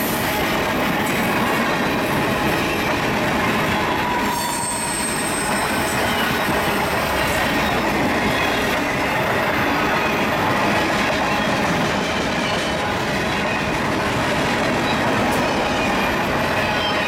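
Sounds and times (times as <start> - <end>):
freight train wheels rumbling on rails: 0.0 - 17.0
high-pitched wheel squeal: 3.7 - 8.6.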